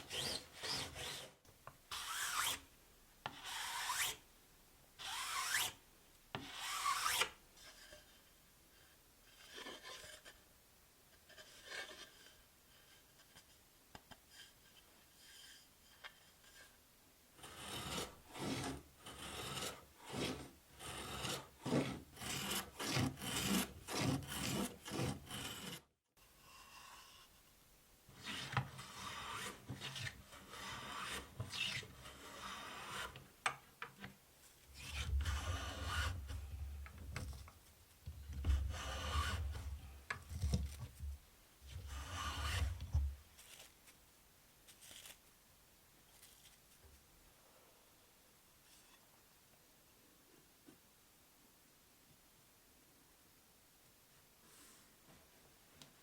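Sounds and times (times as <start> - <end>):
hand tool rasping on wood: 0.0 - 1.3, 6.4 - 7.2, 17.4 - 25.8, 28.2 - 33.2, 34.8 - 36.6, 38.3 - 40.6, 41.8 - 42.9.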